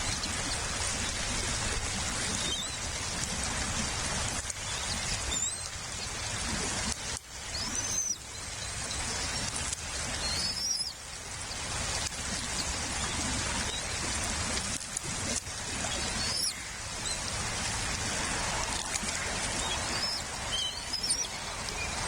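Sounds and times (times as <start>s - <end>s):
rain pattering: 0.0s - 22.0s
high rising bird chirps: 7.5s - 8.2s, 10.2s - 10.9s, 16.0s - 17.2s, 19.6s - 22.0s.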